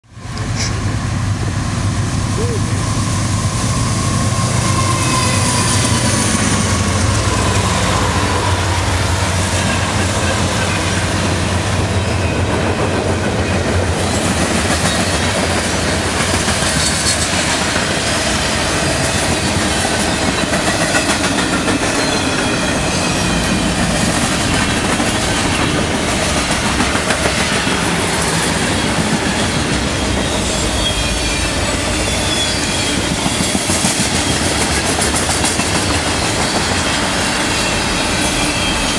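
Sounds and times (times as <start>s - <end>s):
diesel locomotive engines droning: 0.1s - 38.9s
steel wheels clacking on rails: 0.2s - 38.9s
faint high wheel squeals: 2.4s - 10.7s, 30.4s - 33.7s, 35.8s - 38.9s.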